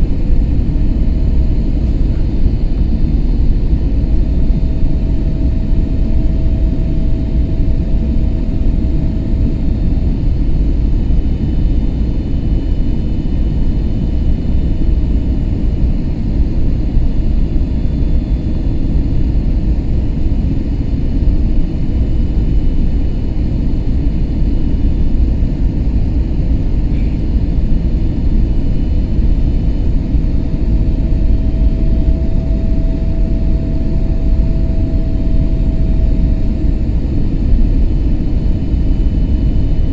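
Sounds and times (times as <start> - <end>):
aircraft cabin engine rumble: 0.0 - 39.9
faint whining tones: 28.2 - 37.7.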